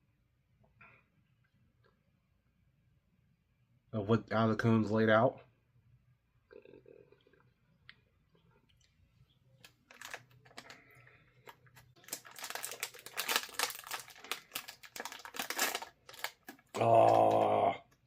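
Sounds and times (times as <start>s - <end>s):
plastic wrapper crinkling: 9.6s - 17.4s.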